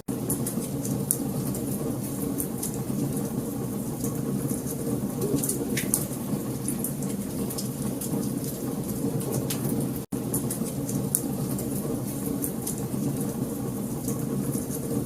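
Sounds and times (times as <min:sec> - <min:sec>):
logs crackling and popping: 0:04.0 - 0:13.3.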